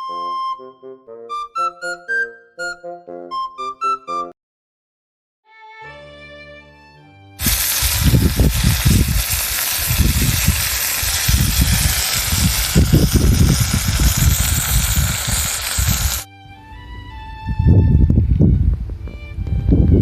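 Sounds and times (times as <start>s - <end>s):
meat sizzling on a grill: 7.4s - 16.3s
low rumbling: 7.4s - 20.0s.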